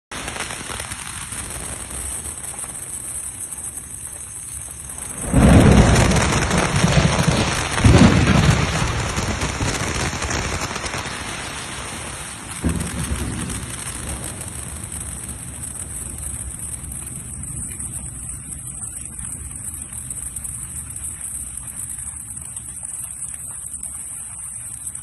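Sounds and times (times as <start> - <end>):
rain hiss: 0.1 - 25.0
thunder rolling: 0.5 - 24.4.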